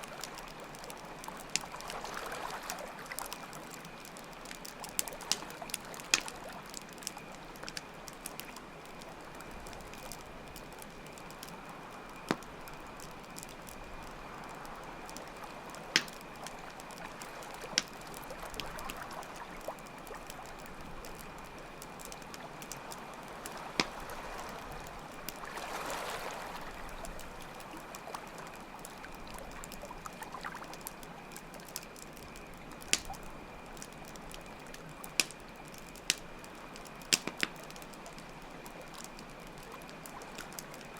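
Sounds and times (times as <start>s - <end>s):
water flowing and lapping: 0.0s - 10.3s, 14.0s - 31.1s
campfire crackling: 0.0s - 40.9s.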